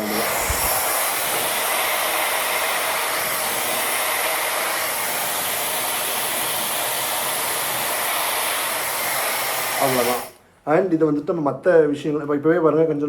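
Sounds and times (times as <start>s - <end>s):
hair dryer blowing air: 0.0s - 10.4s.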